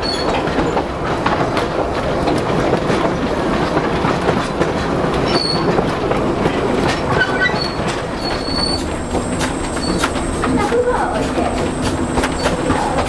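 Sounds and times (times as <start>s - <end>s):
train wheels clattering over rails: 0.0s - 13.0s
high wheel squeals: 5.2s - 13.0s.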